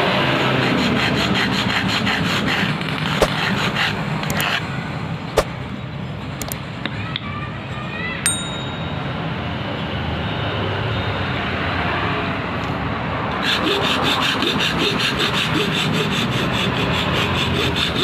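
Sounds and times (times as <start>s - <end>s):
light metal clinks: 8.3s - 9.1s
ringing metal clang: 8.3s - 9.3s.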